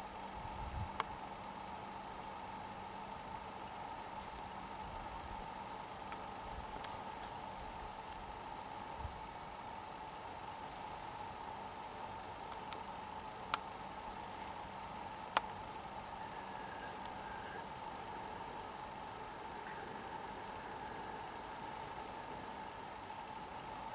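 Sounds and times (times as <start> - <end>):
insects trilling: 0.0 - 23.9.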